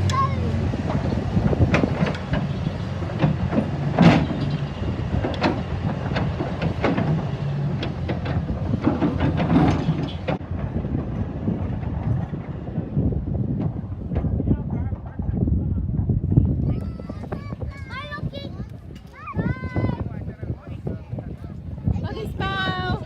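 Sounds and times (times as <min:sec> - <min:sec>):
heavy vehicle engine running: 0:00.0 - 0:14.5
knocks and clanks: 0:00.0 - 0:15.4.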